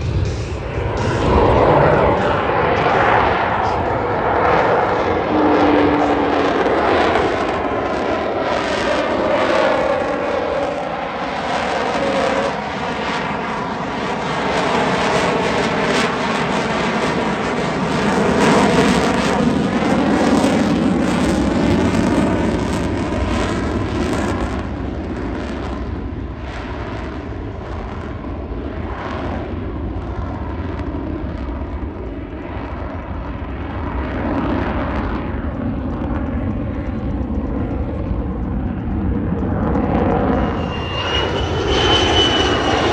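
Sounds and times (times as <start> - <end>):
jet roaring overhead: 0.0 - 42.9.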